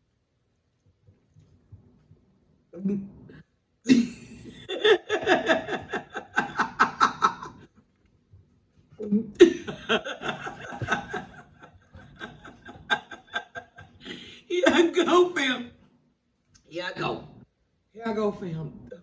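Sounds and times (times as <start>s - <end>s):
woman laughing: 3.9s - 7.6s, 9.3s - 15.1s.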